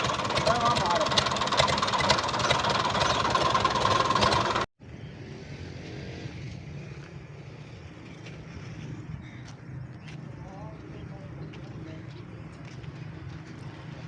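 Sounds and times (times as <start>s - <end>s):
tractor diesel engine running: 0.0s - 4.7s.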